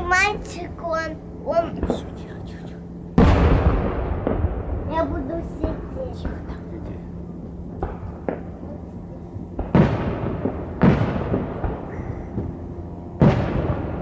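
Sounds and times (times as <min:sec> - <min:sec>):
fireworks booming: 0:01.6 - 0:02.4, 0:03.2 - 0:14.0
small fireworks pops: 0:05.6 - 0:12.6.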